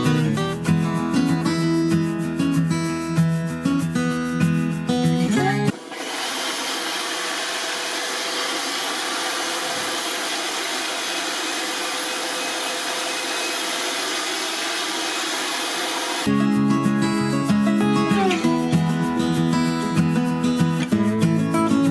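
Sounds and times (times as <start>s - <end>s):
guitar music: 0.0s - 5.7s, 16.3s - 21.9s
robot vacuum cleaner whirring: 5.7s - 16.3s.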